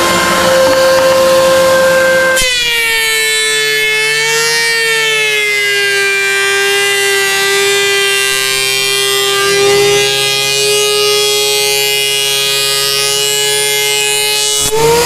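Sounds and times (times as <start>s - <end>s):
surface planer whining: 0.0s - 15.0s.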